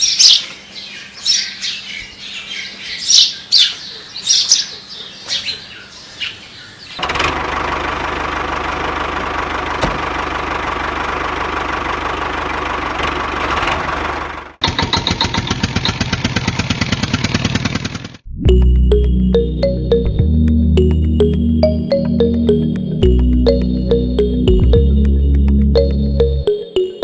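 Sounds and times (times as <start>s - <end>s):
rapidly chugging engine: 7.0s - 18.2s.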